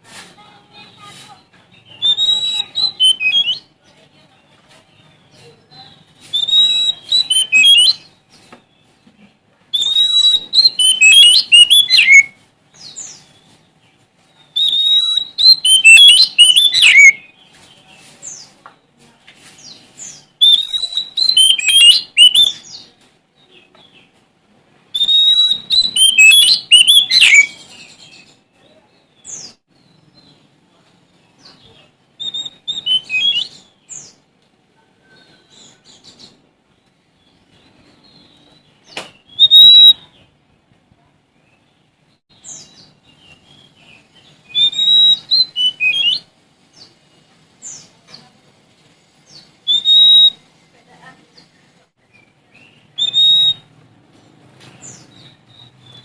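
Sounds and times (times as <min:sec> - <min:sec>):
bird singing whistles and trills: 0:01.8 - 0:03.7, 0:06.2 - 0:08.1, 0:09.7 - 0:13.0, 0:14.5 - 0:17.4, 0:20.4 - 0:22.8, 0:25.0 - 0:28.4, 0:32.2 - 0:34.1, 0:37.6 - 0:40.2, 0:42.5 - 0:46.3, 0:49.6 - 0:50.4, 0:52.1 - 0:53.7.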